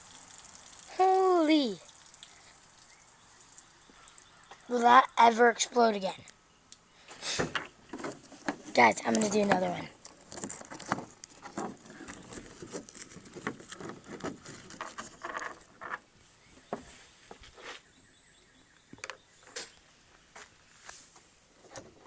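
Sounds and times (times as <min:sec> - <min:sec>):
objects being handled: 0:07.4 - 0:16.0.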